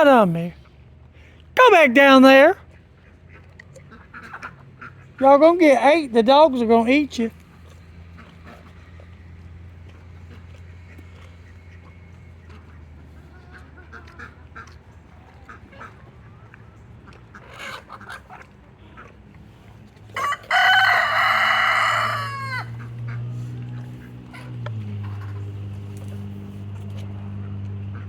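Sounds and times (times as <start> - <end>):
soft chicken clucks: 2.9 - 5.1, 9.8 - 25.6
rooster crowing: 20.2 - 22.9.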